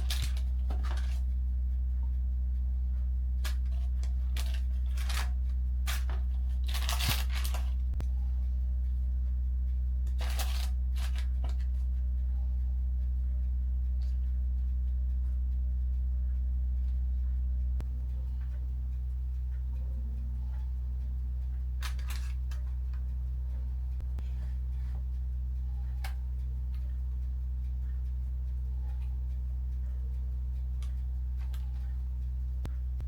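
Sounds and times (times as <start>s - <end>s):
rustling handling noises: 0.0s - 1.3s, 3.4s - 8.0s, 10.1s - 11.8s, 21.8s - 22.7s
steady low hum: 0.0s - 33.0s.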